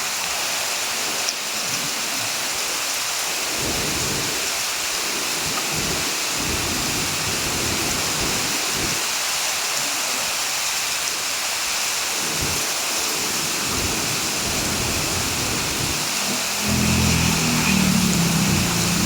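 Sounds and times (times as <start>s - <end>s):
heavy rain hissing: 0.0s - 19.0s
low rumbles: 15.7s - 19.0s.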